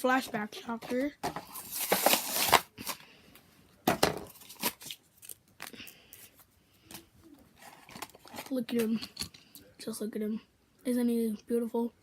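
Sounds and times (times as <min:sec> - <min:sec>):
packaging crackling and snapping: 0:01.5 - 0:03.0.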